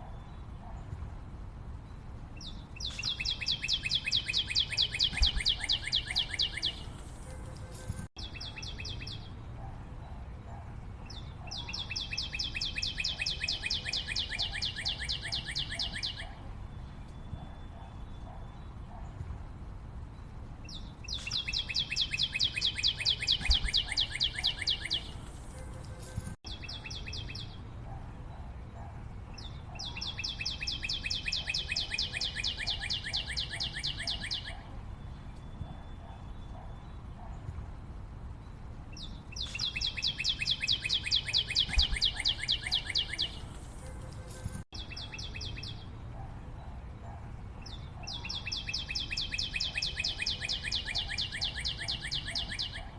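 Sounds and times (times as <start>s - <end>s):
forest background noise: 0.0s - 52.9s
bird trilling: 2.8s - 6.9s, 21.1s - 25.2s, 39.4s - 43.4s.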